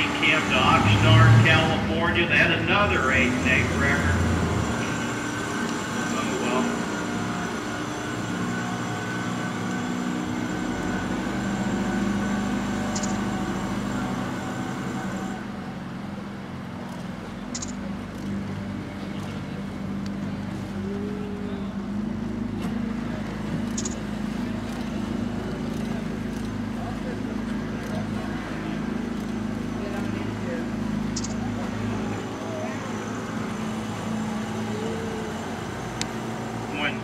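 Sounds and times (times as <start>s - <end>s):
boat engine humming: 0.0s - 37.0s
short high clicks: 12.9s - 13.3s, 17.5s - 17.8s, 23.7s - 24.0s, 31.2s - 31.4s.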